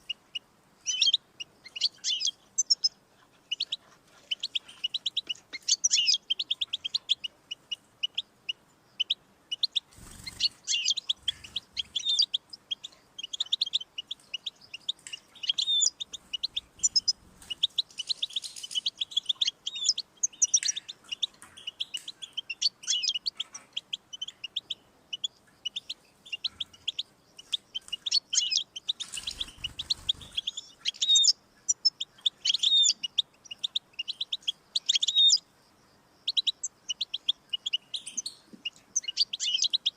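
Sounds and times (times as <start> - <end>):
goldfinch twittering song: 0.0 - 35.4, 36.2 - 39.9.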